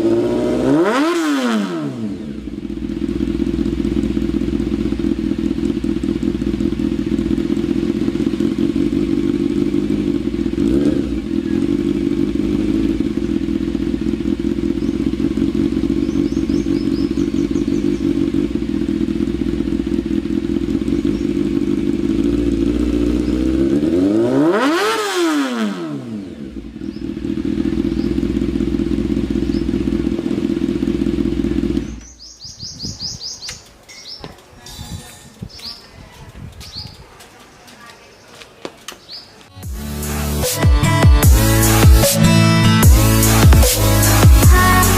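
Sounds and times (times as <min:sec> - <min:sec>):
motorcycle engine idling: 0:02.0 - 0:24.9, 0:25.5 - 0:34.5, 0:41.1 - 0:44.9
faint bird chirps: 0:15.9 - 0:18.4, 0:26.8 - 0:28.4, 0:29.4 - 0:29.8, 0:31.8 - 0:38.4.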